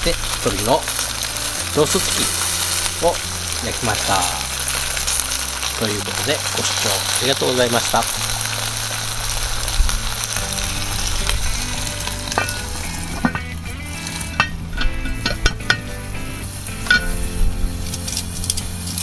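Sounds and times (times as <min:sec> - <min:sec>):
wood fire crackling: 0:00.0 - 0:19.0
sharp pops of fire: 0:08.2 - 0:19.0.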